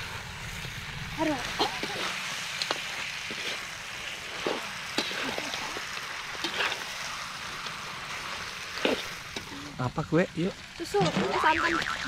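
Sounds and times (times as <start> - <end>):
meat sizzling in a wok: 0.0 - 12.0
metal spatula scraping a pan: 1.8 - 7.0.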